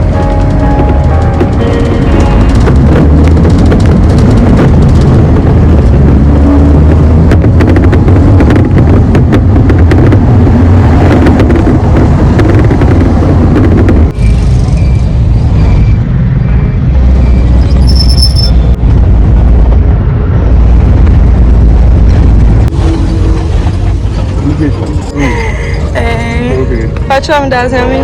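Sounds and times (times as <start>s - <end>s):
wind buffeting microphone: 0.0s - 14.2s
vehicle low rumble: 0.0s - 28.0s.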